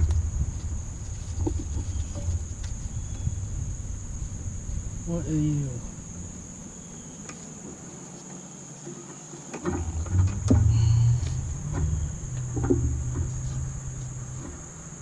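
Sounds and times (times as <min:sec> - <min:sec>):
low rumble: 0:00.0 - 0:07.2, 0:09.7 - 0:15.0
high-pitched insect drone: 0:01.9 - 0:15.0
scattered knocks: 0:09.6 - 0:13.4.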